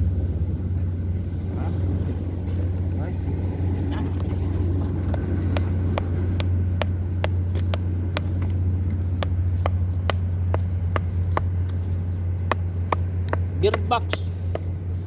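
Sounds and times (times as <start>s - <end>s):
regular sharp ticking: 5.0s - 14.8s.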